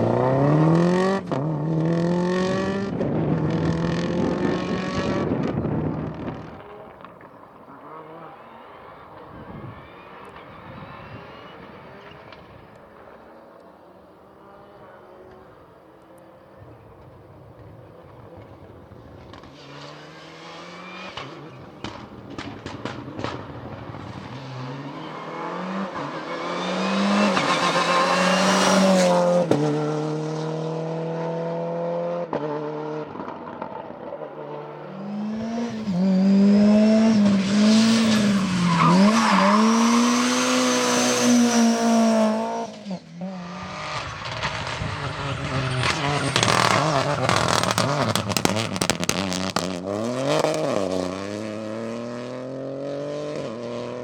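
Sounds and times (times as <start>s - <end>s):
rally car engine revving: 0.0s - 12.4s, 19.2s - 54.0s
tire squeal: 7.7s - 12.7s, 24.0s - 29.4s, 37.1s - 43.0s, 43.6s - 50.6s.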